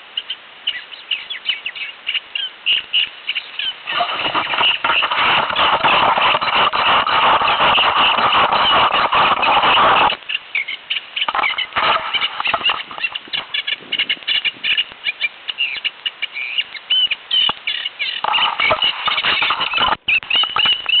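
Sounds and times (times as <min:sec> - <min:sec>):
songbird singing: 0:00.0 - 0:21.0
rushing noise: 0:03.8 - 0:10.2, 0:11.3 - 0:13.5.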